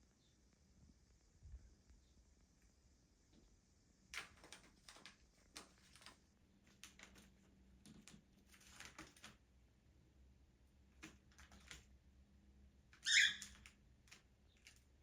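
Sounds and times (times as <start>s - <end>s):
cockatiels clicking and scratching: 4.1s - 9.7s, 10.7s - 12.1s, 12.8s - 15.0s.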